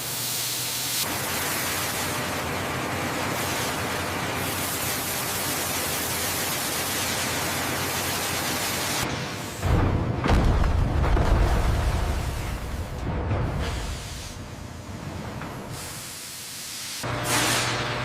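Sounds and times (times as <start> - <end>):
loud rushing hiss: 13.6 - 14.9.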